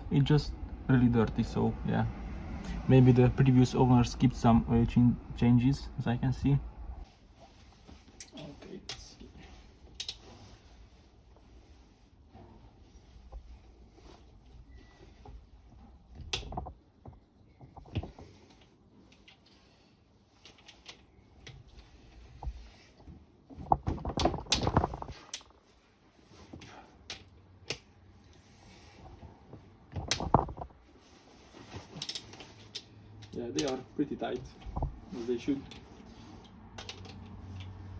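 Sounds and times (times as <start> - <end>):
hand tools clicking on metal: 32.0 - 33.8.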